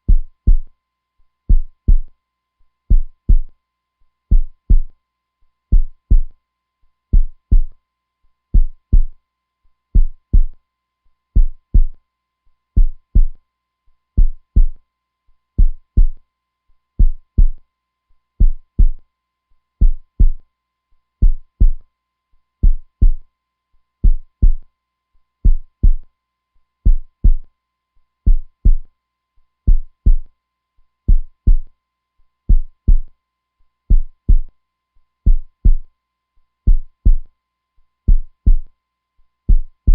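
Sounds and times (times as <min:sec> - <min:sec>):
heartbeat thumping: 0:00.1 - 0:00.7, 0:01.5 - 0:02.1, 0:02.9 - 0:03.5, 0:04.3 - 0:04.9, 0:05.7 - 0:06.3, 0:07.2 - 0:07.7, 0:08.6 - 0:09.2, 0:10.0 - 0:10.6, 0:11.4 - 0:12.0, 0:12.8 - 0:13.4, 0:14.2 - 0:14.8, 0:15.6 - 0:16.2, 0:17.0 - 0:17.6, 0:18.4 - 0:19.0, 0:19.8 - 0:20.4, 0:21.2 - 0:21.8, 0:22.6 - 0:23.2, 0:24.0 - 0:24.6, 0:25.4 - 0:26.0, 0:26.9 - 0:27.4, 0:28.3 - 0:28.9, 0:29.7 - 0:30.3, 0:31.1 - 0:31.7, 0:32.5 - 0:33.1, 0:33.9 - 0:34.5, 0:35.3 - 0:35.8, 0:36.7 - 0:37.3, 0:38.1 - 0:38.7, 0:39.5 - 0:39.9.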